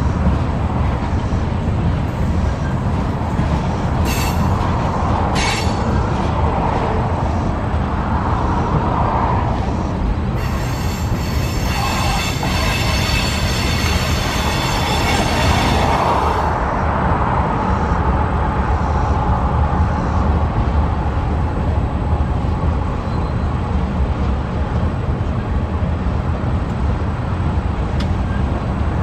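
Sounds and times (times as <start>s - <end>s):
train wheels rumbling on rail: 0.0s - 29.0s
high-pitched wheel squeal: 10.4s - 16.5s.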